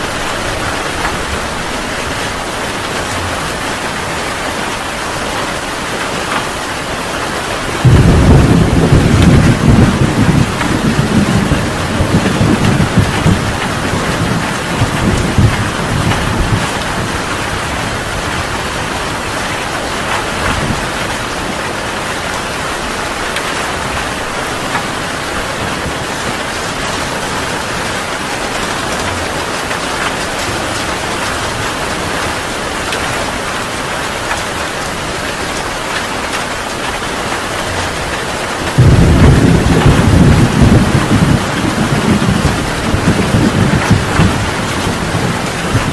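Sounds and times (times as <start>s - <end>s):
heavy rain: 0.0s - 45.9s
thunder rumble: 7.7s - 21.6s, 38.6s - 45.9s.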